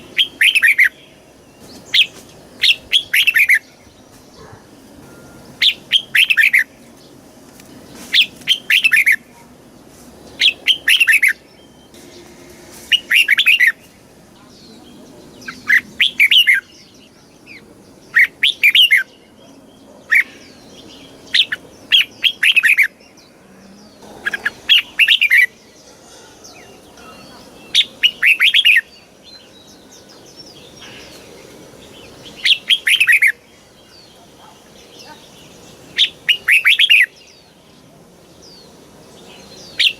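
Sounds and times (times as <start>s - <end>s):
bird singing bright phrases: 0.0s - 39.9s.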